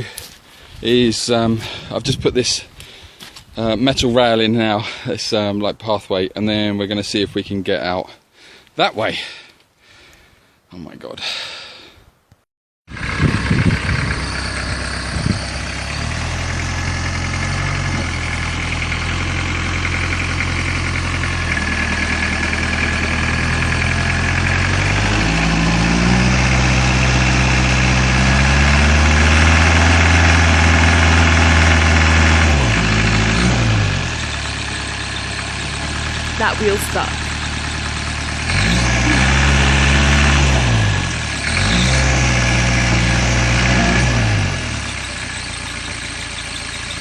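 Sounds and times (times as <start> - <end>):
engine running under load: 12.9 - 47.0.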